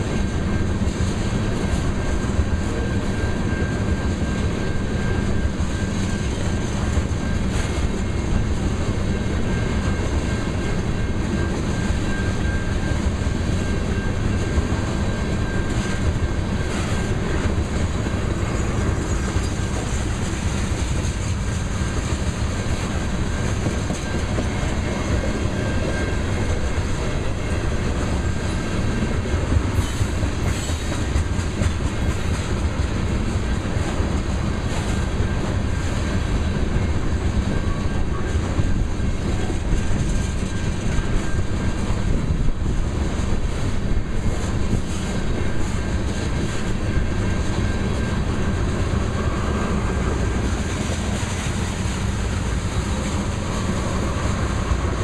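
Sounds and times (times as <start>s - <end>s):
clickety-clack over rail joints: 0.0s - 55.0s
train wheels rumbling on rails: 0.0s - 55.0s.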